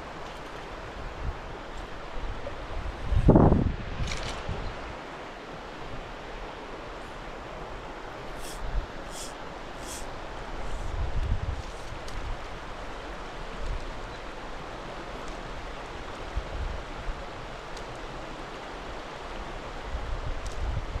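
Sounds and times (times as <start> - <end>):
creek water rushing: 4.8 - 11.1, 11.8 - 20.2.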